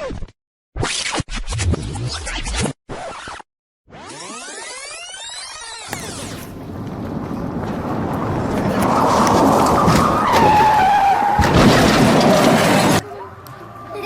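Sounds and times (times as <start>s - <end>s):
tyres skidding: 5.9s - 13.8s
tyre squeal dropping in pitch: 9.7s - 12.4s.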